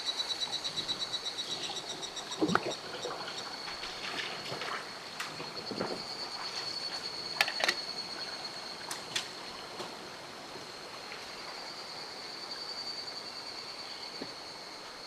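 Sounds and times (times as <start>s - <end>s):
stream flowing: 1.7s - 5.2s.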